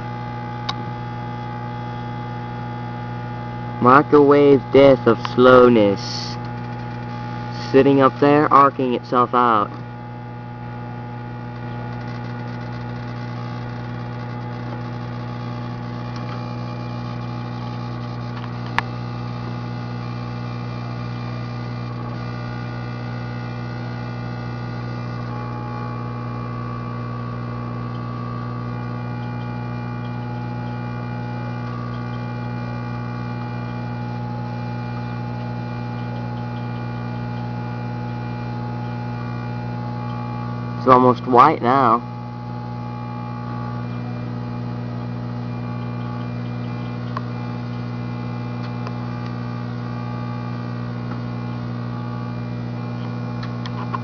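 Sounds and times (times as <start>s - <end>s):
microwave oven humming: 0.0s - 54.0s
sharp electrical snap: 6.1s - 7.8s.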